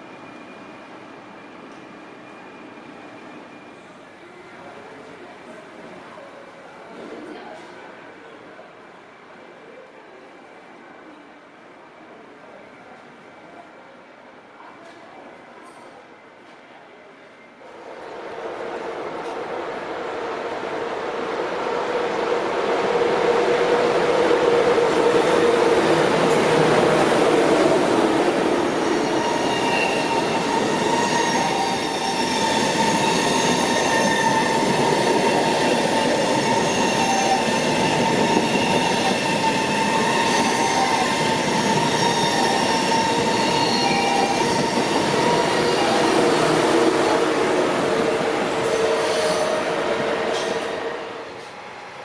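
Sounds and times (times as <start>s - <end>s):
train wheels rumbling on rails: 17.8s - 51.8s.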